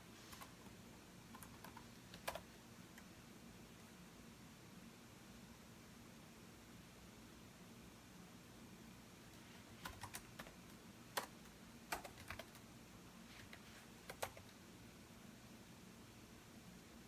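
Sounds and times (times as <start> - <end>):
computer keyboard typing: 1.3 - 2.5, 9.8 - 12.7, 13.4 - 14.5.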